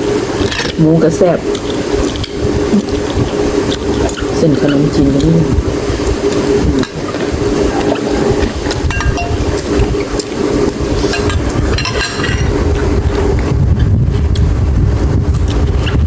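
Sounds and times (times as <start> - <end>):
low hum: 0.0 - 16.0
chewing and mouth sounds: 1.4 - 11.8, 15.3 - 16.0.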